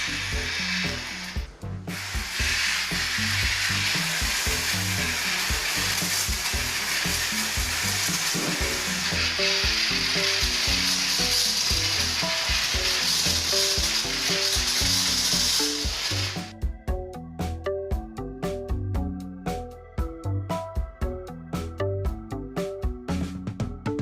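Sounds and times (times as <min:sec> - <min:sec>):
steady loud hiss: 0:00.0 - 0:16.5
background music melody: 0:00.0 - 0:24.0.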